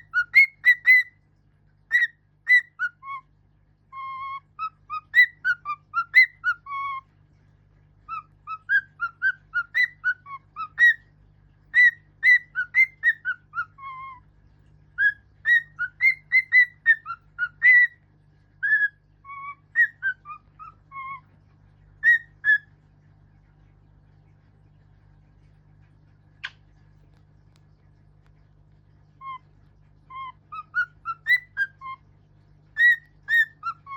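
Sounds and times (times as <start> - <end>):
songbird whistling a melody: 0.0 - 1.2, 1.9 - 3.3, 3.9 - 7.1, 8.1 - 11.1, 11.7 - 14.2, 14.9 - 18.0, 18.6 - 21.3, 22.0 - 22.7, 30.1 - 32.0, 32.7 - 33.9.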